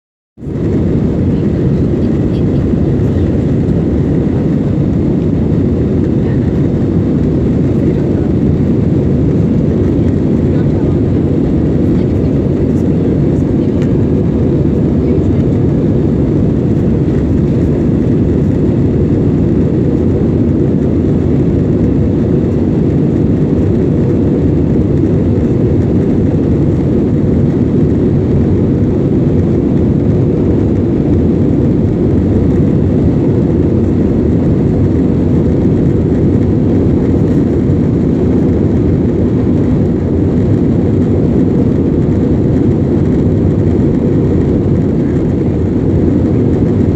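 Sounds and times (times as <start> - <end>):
jet engines rumbling in cabin: 0.4 - 46.9.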